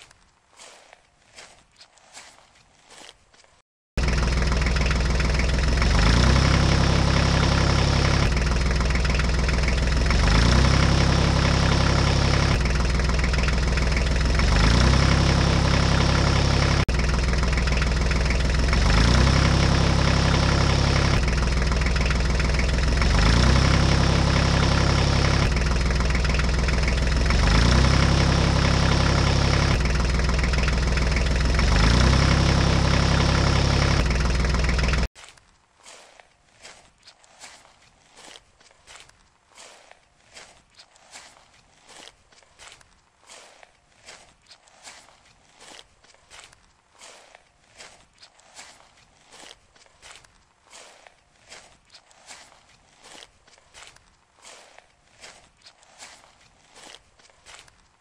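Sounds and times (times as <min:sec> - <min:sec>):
diesel tractor engine idling: 0:04.0 - 0:35.1.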